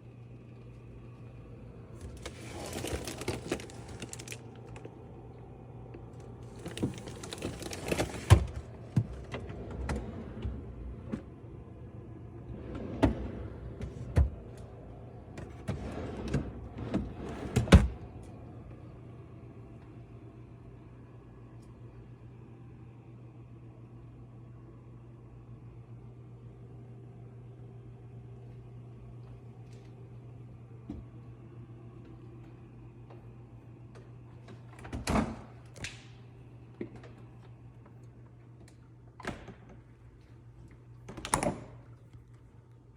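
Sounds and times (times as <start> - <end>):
refrigerator hum: 0.0 - 42.9.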